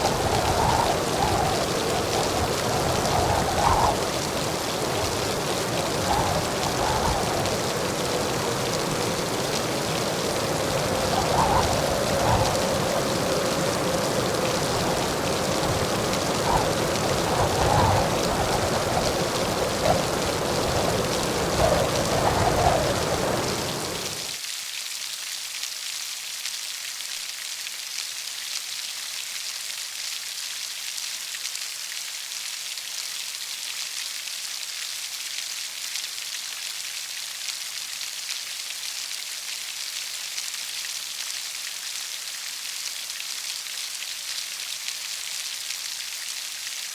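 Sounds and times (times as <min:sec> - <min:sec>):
heavy rain hissing: 0:00.0 - 0:24.4.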